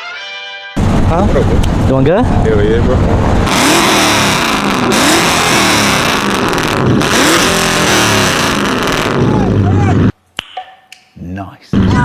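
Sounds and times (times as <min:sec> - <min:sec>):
car engine revving: 0:00.8 - 0:10.1.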